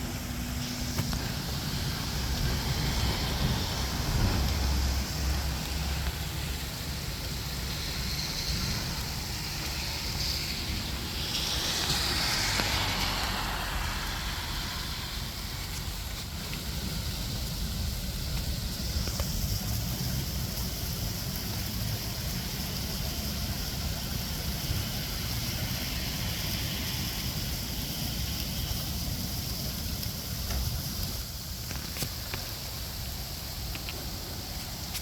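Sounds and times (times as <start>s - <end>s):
low rumble: 0.0s - 20.2s
rain hissing: 0.0s - 35.0s.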